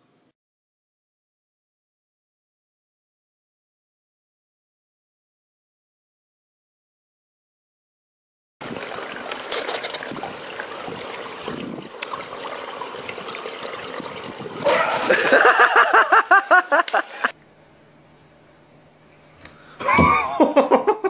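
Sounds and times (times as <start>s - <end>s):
pool water splashing: 8.6s - 17.4s
loud voice bursts: 14.6s - 15.1s.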